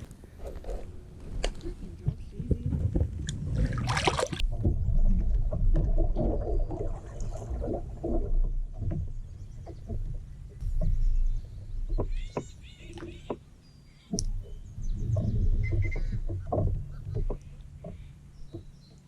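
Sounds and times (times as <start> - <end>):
low rumble: 0.0 - 18.9
water sounds: 0.0 - 19.0
knocks and clicks on kayak hull: 8.0 - 13.5, 14.1 - 19.0.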